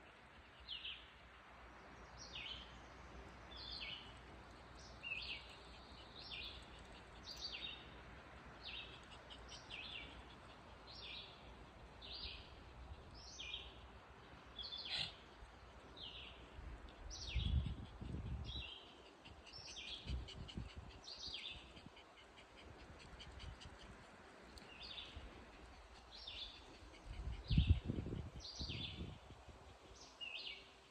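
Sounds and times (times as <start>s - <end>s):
steady outdoor hiss: 0.0s - 30.9s
bird chirping: 17.1s - 29.1s.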